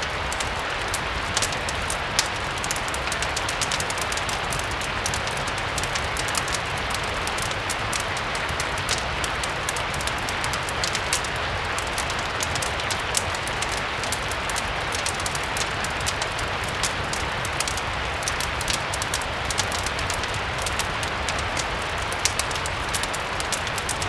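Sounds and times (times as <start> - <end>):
fireplace crackling: 0.0 - 24.0
steady rain hiss: 0.0 - 24.0.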